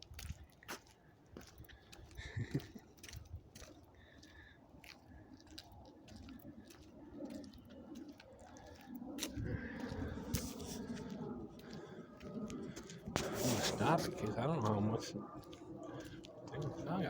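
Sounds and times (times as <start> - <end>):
footsteps: 0.0 - 17.0.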